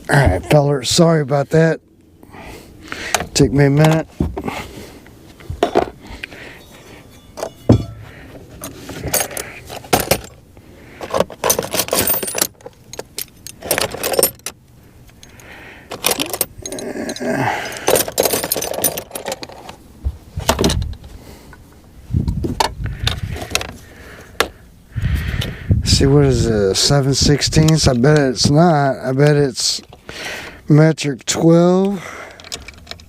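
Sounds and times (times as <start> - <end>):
metal tools clinking and rattling: 5.6 - 10.4, 11.0 - 19.8.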